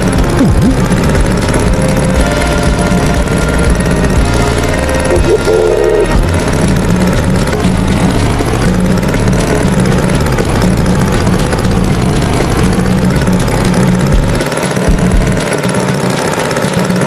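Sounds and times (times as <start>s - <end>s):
heavy engine droning: 0.0s - 17.0s.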